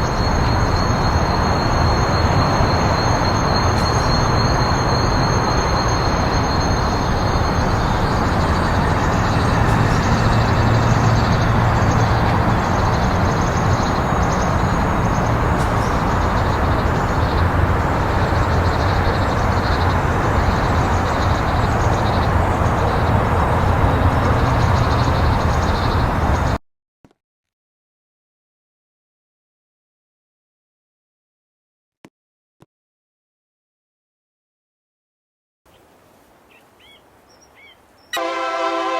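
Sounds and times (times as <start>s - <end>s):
faint high ringing: 0.0s - 17.4s
train wheels rumbling on rail: 0.0s - 26.6s.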